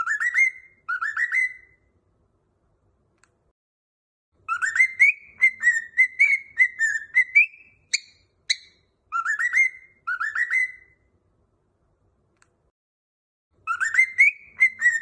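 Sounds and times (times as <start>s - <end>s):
cockatiel chirps: 0.0s - 1.9s, 4.4s - 11.1s, 13.6s - 15.0s
cockatiel whistling: 0.0s - 1.9s, 4.5s - 11.0s, 13.6s - 15.0s.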